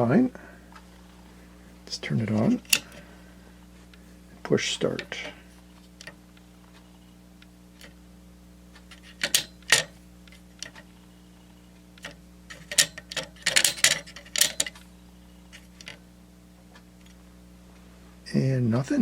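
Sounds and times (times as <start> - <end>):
plastic game buttons clicking: 2.6 - 3.0, 8.9 - 10.0, 12.0 - 14.8, 15.5 - 16.0.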